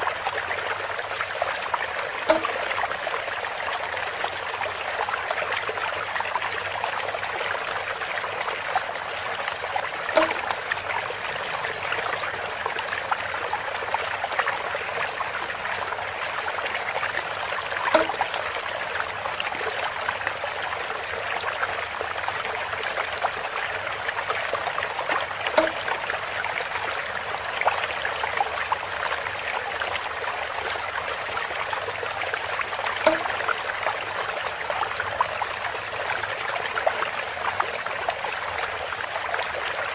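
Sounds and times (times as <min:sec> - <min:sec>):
water trickling through bamboo: 0:00.0 - 0:39.9
hollow bamboo knock: 0:02.3 - 0:02.8, 0:10.1 - 0:10.6, 0:17.9 - 0:18.4, 0:25.5 - 0:26.0, 0:33.0 - 0:33.4.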